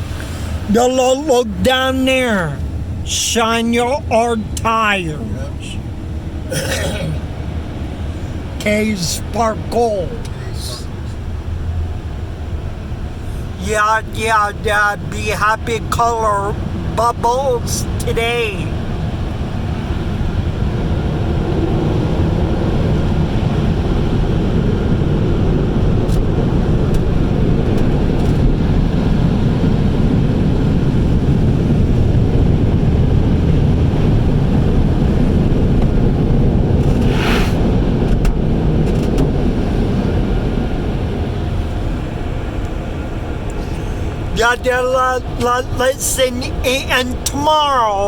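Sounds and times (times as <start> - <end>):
car wash spraying water: 0.0 - 14.6, 17.6 - 48.0.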